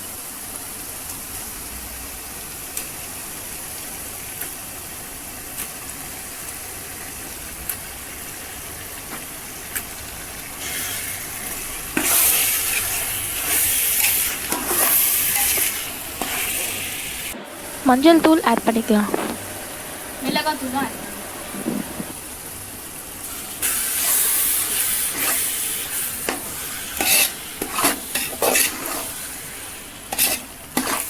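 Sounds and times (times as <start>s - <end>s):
chicken sizzling in oil: 0.0s - 31.0s
ladle scraping pot: 21.2s - 22.2s.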